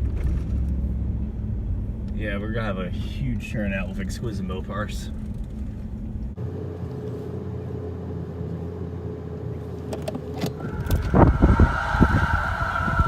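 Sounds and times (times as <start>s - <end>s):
car engine and road hum: 0.0s - 13.0s
uneven engine rumble: 0.0s - 13.0s
steady high tone: 10.6s - 13.0s.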